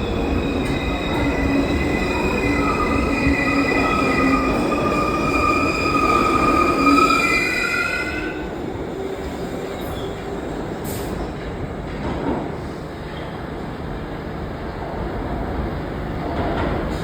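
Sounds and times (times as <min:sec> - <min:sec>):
train wheels squealing: 0:00.0 - 0:08.5, 0:09.2 - 0:11.2
train rumble: 0:00.0 - 0:17.0.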